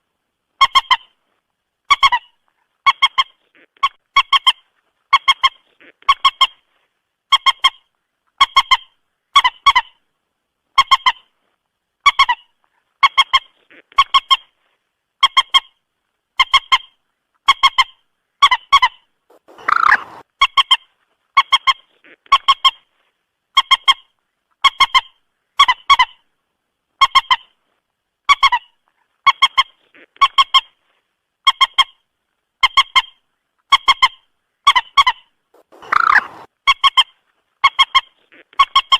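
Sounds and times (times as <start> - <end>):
moorhen calls: 17.5 - 20.8, 33.8 - 38.9.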